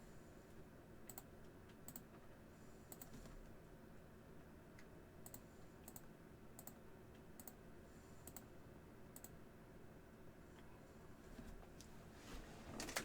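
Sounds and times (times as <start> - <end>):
faint sharp clicks: 8.3 - 8.5.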